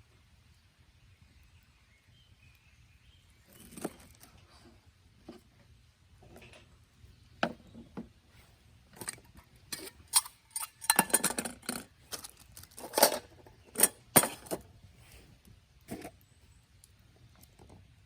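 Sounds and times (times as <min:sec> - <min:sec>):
cookware knocking and clinking: 0:10.6 - 0:11.6.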